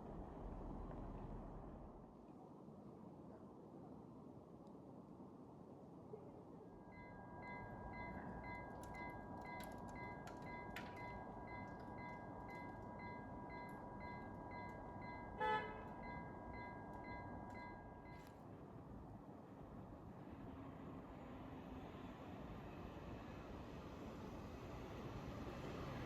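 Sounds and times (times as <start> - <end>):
faint continuous tone: 0.0 - 26.0
level crossing bell ringing: 6.9 - 18.3
train horn toot: 15.4 - 16.1.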